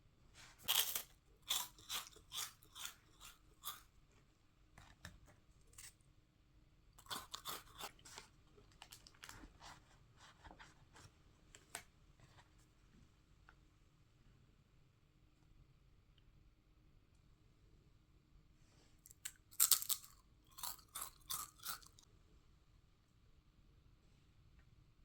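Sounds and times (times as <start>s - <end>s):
plastic snack wrappers crinkling: 0.6s - 3.8s, 7.0s - 9.8s, 19.1s - 22.0s.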